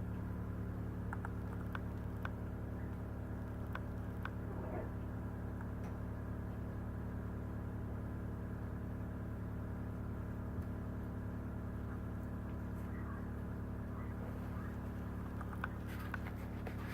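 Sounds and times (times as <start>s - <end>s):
low electrical hum: 0.0s - 16.9s.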